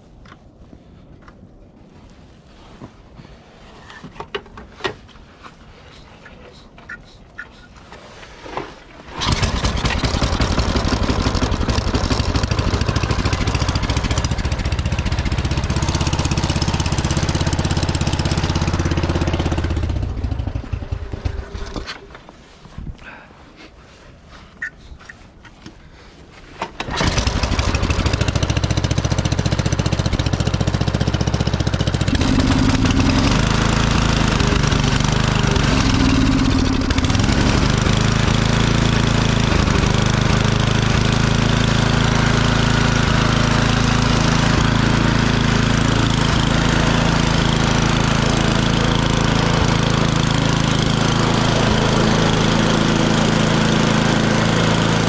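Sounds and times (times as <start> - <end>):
snowblower engine running: 9.1 - 22.1, 26.8 - 55.0.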